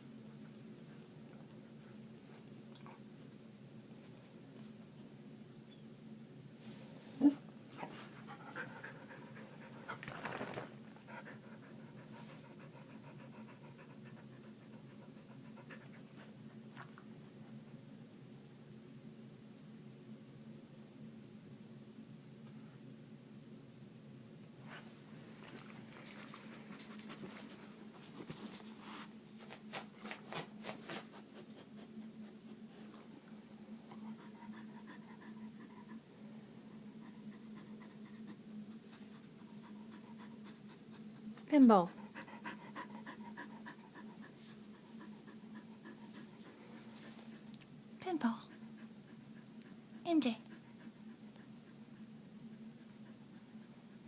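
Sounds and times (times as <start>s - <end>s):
dog panting: 7.2s - 17.0s, 24.7s - 54.0s.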